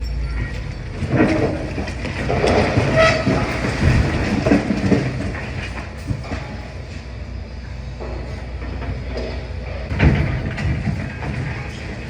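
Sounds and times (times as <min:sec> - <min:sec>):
machine squeal: 0:00.0 - 0:01.6, 0:02.6 - 0:03.7
excavator engine rumble: 0:00.0 - 0:12.0
masonry crunching and clanking: 0:00.2 - 0:07.3, 0:07.9 - 0:12.0.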